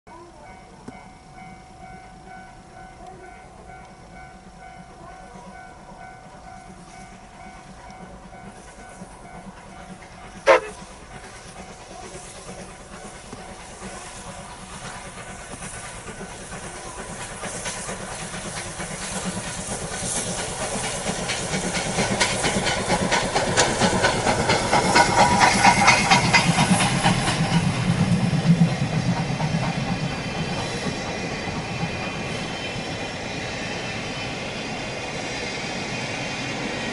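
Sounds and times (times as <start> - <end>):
steam locomotive chuffing: 0.1 - 36.9
train coaches rumbling and clicking: 0.1 - 36.9
hissing steam: 5.7 - 36.9.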